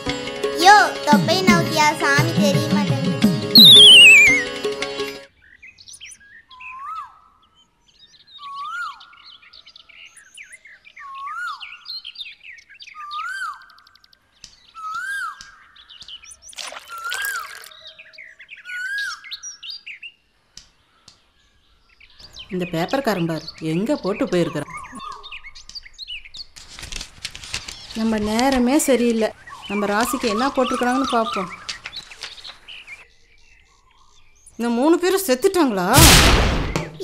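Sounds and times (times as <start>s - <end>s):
bird whistle rising and falling: 3.6s - 4.5s
quick high bird chirps: 3.6s - 4.5s.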